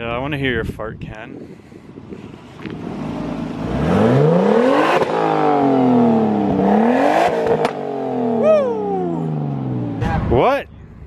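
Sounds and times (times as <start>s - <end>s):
car engine revving: 2.3s - 10.3s.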